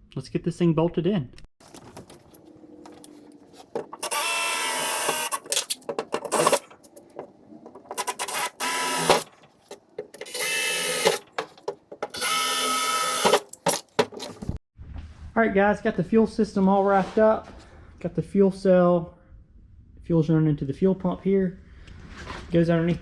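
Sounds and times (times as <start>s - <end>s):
cordless drill whining: 1.6s - 14.5s.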